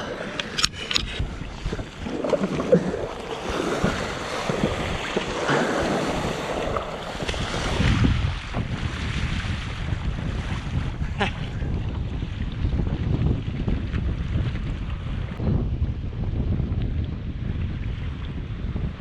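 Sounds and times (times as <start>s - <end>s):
sea water splashing: 0.0s - 12.8s
wind buffeting microphone: 0.0s - 19.0s.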